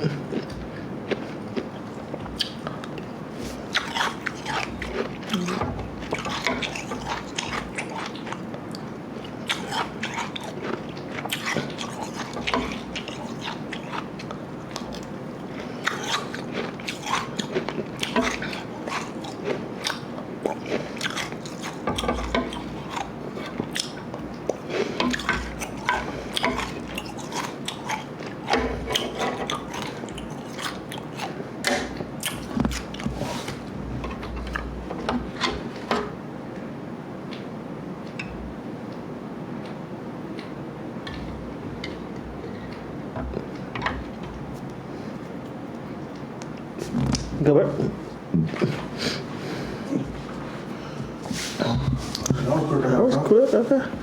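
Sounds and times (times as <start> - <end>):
crunching and chewing ice: 9.2 - 31.4.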